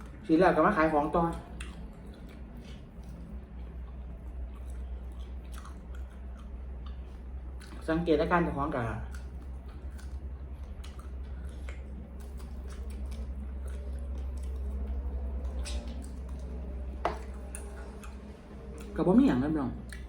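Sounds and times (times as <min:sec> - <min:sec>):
steady low hum: 0:00.0 - 0:20.0
wet chewing mouth sounds: 0:01.1 - 0:07.9, 0:08.9 - 0:19.0, 0:19.7 - 0:20.0.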